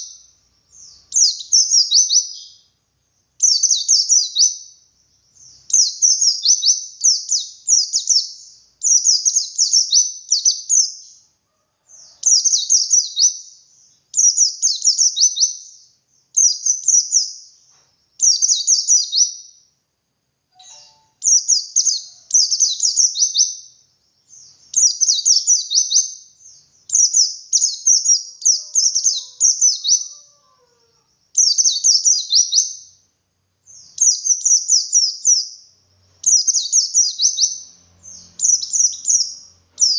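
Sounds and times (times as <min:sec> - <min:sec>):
white-eye twittering song: 0:00.0 - 0:11.3, 0:20.5 - 0:30.4, 0:31.1 - 0:39.9.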